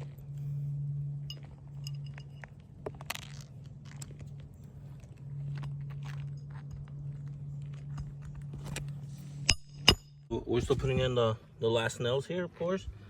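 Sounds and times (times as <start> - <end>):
steady low hum: 0.0 - 13.0
shingles crunching and scraping: 1.5 - 9.2.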